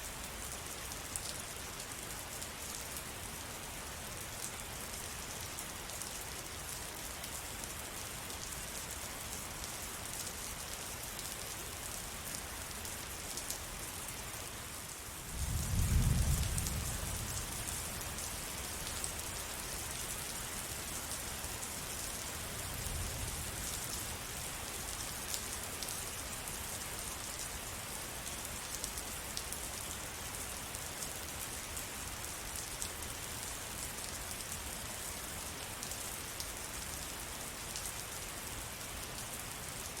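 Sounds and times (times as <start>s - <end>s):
steady rain falling: 0.0s - 40.0s
low rumble of thunder: 15.3s - 18.2s.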